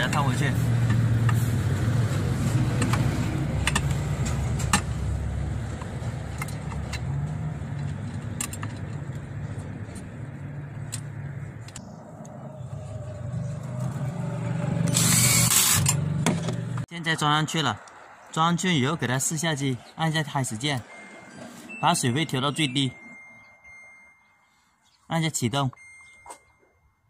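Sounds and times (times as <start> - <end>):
clicks of parts being fitted: 2.8 - 4.9.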